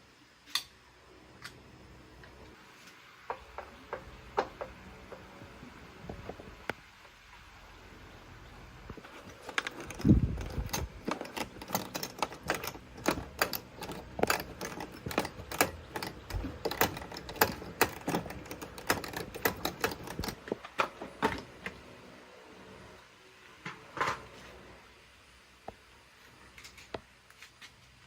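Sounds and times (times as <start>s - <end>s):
hand tools clicking on metal: 9.0s - 21.5s.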